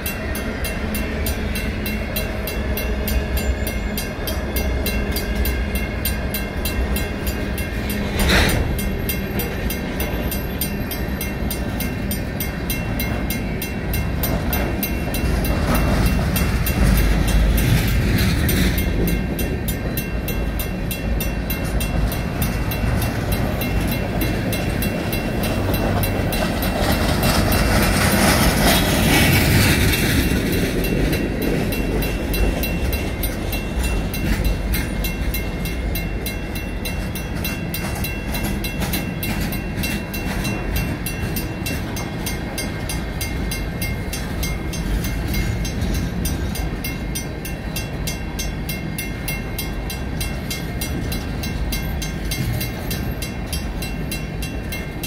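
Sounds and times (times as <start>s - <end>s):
crossing bell ringing: 0.0s - 55.0s
freight cars rolling with clacking: 0.0s - 55.0s.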